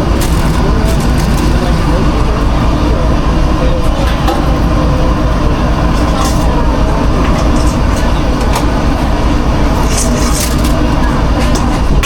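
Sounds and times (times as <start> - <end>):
kitchen machinery rumble and hiss: 0.0 - 12.0.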